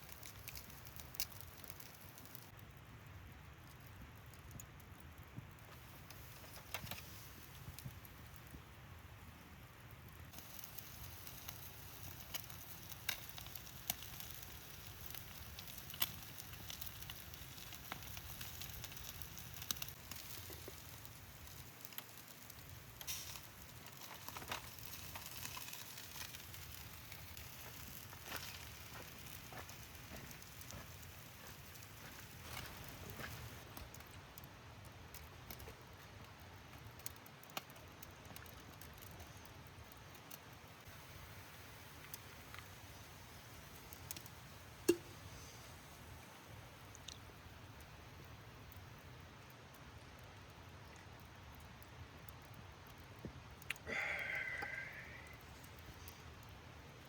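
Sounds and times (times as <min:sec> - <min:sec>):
campfire crackling: 0:00.0 - 0:57.0.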